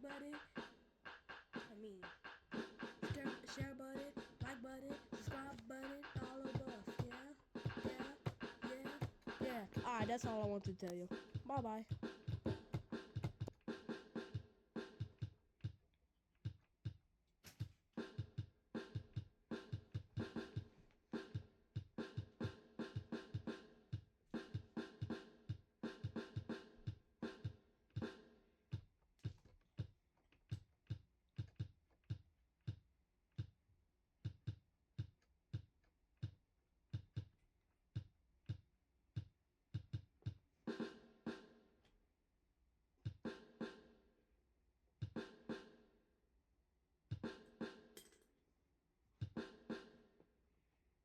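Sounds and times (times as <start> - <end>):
drum-machine beat: 0.0 - 15.8, 18.0 - 29.9.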